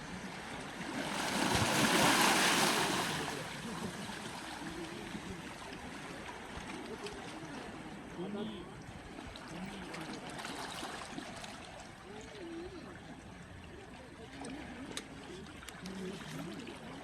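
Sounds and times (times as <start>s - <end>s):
steady wash of surf: 0.8s - 3.6s
wave breaking on shore: 0.8s - 4.3s.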